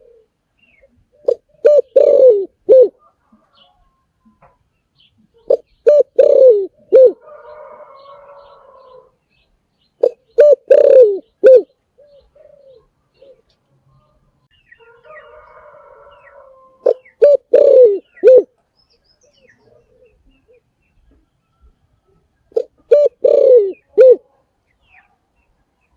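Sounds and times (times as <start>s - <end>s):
dove cooing: 0.0s - 3.7s, 5.3s - 9.1s, 10.0s - 13.5s, 15.0s - 18.5s, 19.3s - 20.7s, 22.5s - 24.4s.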